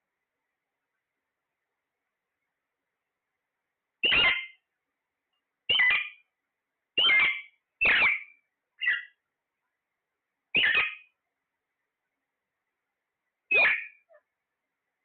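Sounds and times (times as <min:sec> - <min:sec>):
parrot squawking: 0:04.0 - 0:04.6, 0:05.7 - 0:06.2, 0:07.0 - 0:09.2, 0:10.6 - 0:11.1, 0:13.5 - 0:14.2.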